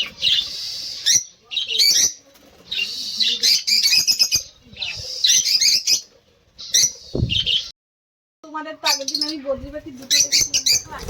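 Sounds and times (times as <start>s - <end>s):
budgerigars chirping and chattering: 0.0s - 7.7s, 8.8s - 11.0s.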